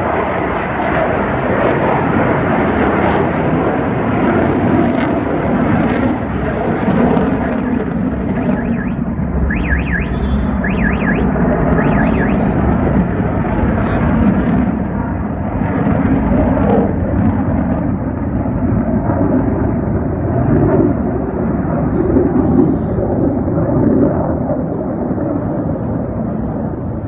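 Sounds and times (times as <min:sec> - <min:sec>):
jet aircraft roar: 0:00.0 - 0:27.0.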